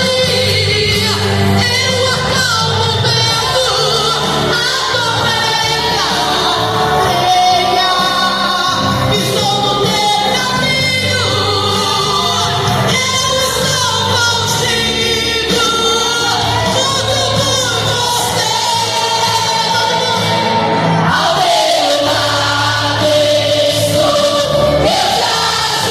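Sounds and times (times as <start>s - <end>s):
instrumental accompaniment with bass: 0.0s - 25.9s
voices singing with vibrato: 0.0s - 25.9s.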